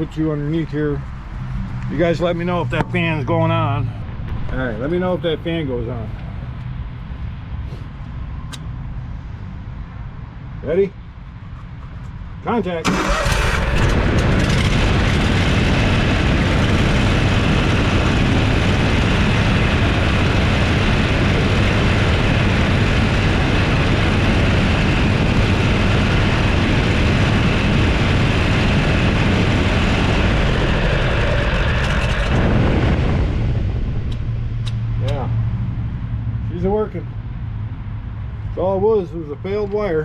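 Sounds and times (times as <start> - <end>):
cooling fans running: 0.0 - 40.0
mower engine running: 12.8 - 32.7.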